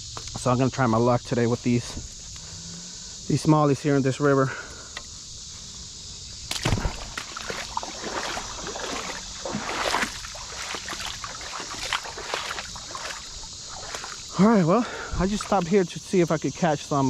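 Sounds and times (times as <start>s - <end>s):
high insect chirring: 0.0s - 17.0s
water sloshing and splashing: 6.5s - 14.4s, 15.0s - 15.8s.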